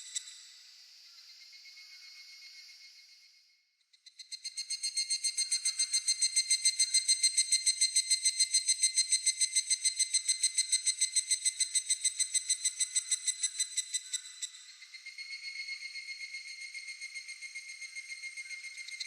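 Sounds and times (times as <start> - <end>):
cicada whistle-like trill: 4.3 - 19.0.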